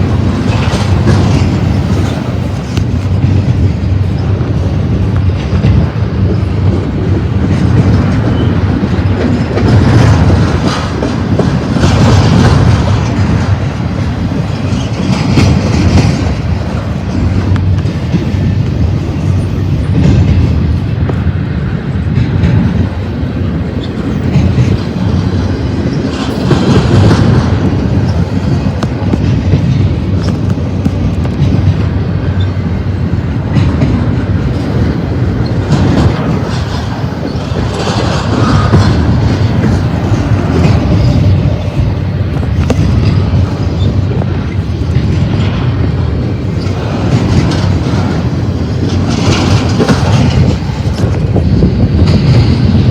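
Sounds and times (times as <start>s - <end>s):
freight train rumbling past: 0.0s - 52.9s
wheels clattering over rails: 0.0s - 52.9s.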